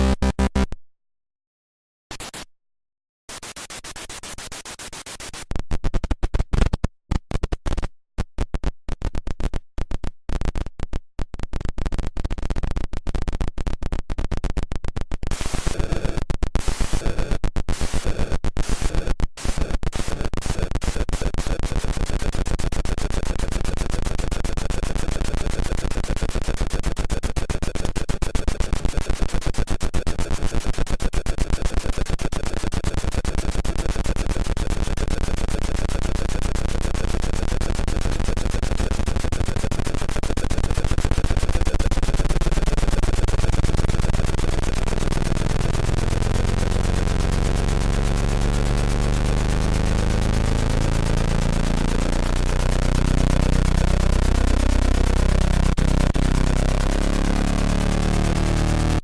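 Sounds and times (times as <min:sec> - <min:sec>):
synthesized helicopter rotor chop: 0:35.4 - 0:59.0.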